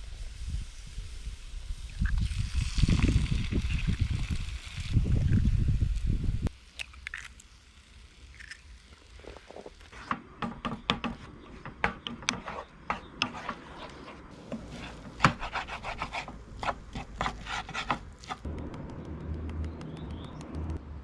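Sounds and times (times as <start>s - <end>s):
scraping and rubbing on wood: 9.9s - 18.5s.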